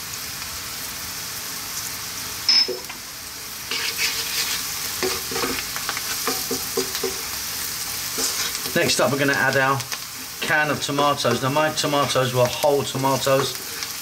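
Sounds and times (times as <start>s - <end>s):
food sizzling in hot oil: 0.0s - 14.0s
wooden spoon scraping a pan: 3.7s - 7.4s, 8.0s - 9.1s.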